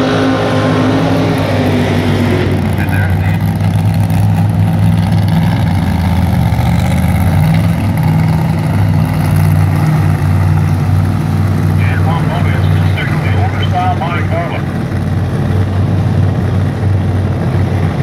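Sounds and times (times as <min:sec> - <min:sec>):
engine running: 0:00.0 - 0:18.0
voice: 0:02.8 - 0:03.4, 0:11.8 - 0:14.7.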